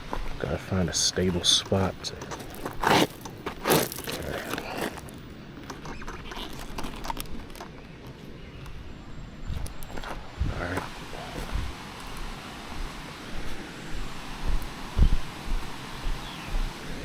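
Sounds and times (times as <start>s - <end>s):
handling knocks and rustles: 1.2s - 8.8s.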